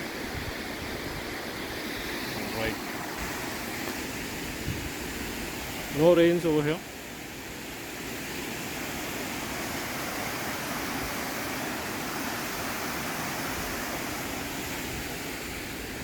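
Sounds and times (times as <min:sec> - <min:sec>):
water rushing out of a dam: 0:00.0 - 0:16.0.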